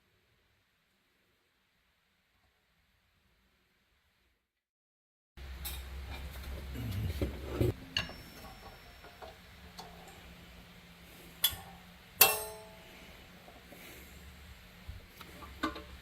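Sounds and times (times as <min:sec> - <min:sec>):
metallic clink: 0:07.9 - 0:10.0.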